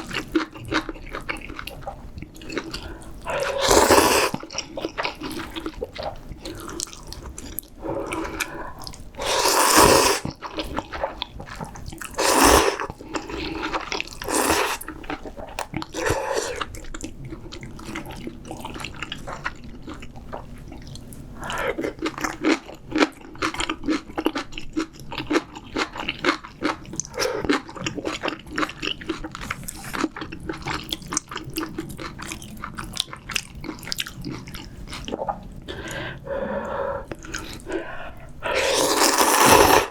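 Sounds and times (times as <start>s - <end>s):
wet chewing: 0.0s - 39.9s
slurping noodles: 2.7s - 4.6s, 7.8s - 16.7s, 35.8s - 39.9s.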